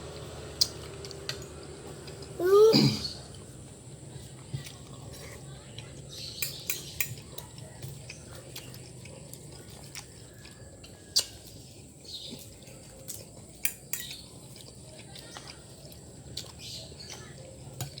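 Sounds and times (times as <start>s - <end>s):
soft chewing: 0.0s - 18.0s
utensils clicking on dishes: 6.4s - 7.2s, 13.0s - 14.7s.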